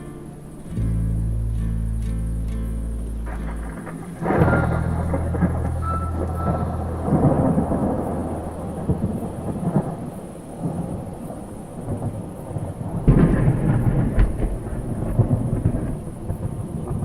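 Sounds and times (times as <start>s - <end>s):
thunder rumbling: 2.8s - 17.0s
loud thunderclap: 3.3s - 17.0s.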